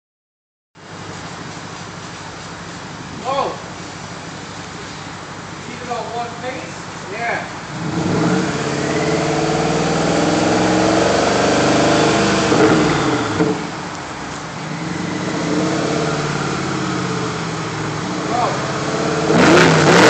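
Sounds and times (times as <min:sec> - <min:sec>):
car engine revving: 0:07.6 - 0:14.0, 0:14.6 - 0:20.0.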